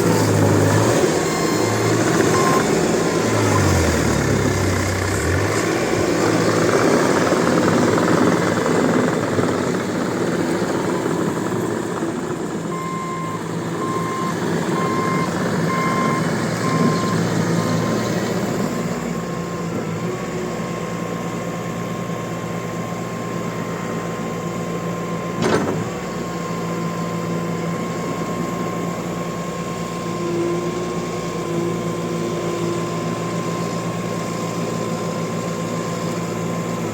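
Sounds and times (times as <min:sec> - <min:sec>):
loader diesel engine running: 0:00.0 - 0:36.9
backup alarm beeping: 0:01.4 - 0:02.8.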